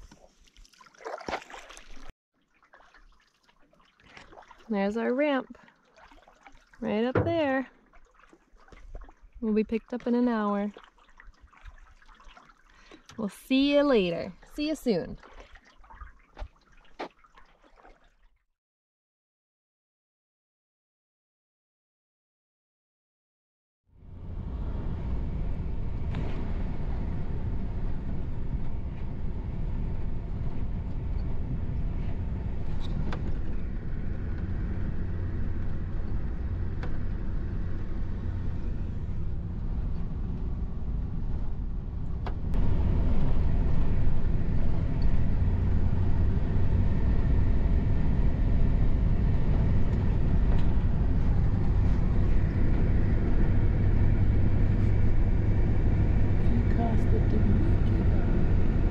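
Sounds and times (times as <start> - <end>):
vehicle engine rumble: 24.0 - 58.9.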